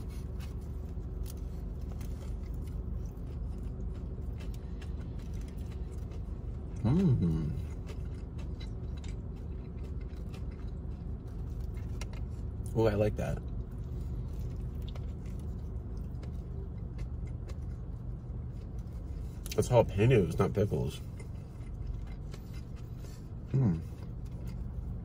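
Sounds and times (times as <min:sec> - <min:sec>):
chewing food: 0:00.0 - 0:25.0
steady low hum: 0:00.0 - 0:25.0
person humming mmm: 0:06.8 - 0:07.6, 0:23.5 - 0:23.8.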